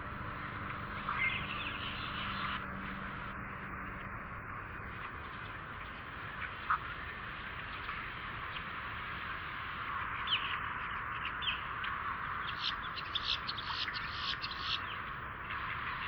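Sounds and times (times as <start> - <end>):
birds calling harshly: 1.0 - 2.6, 11.2 - 15.2.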